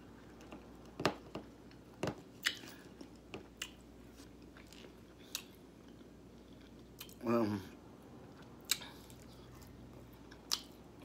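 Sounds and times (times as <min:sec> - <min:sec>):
chewing: 0:02.4 - 0:07.2.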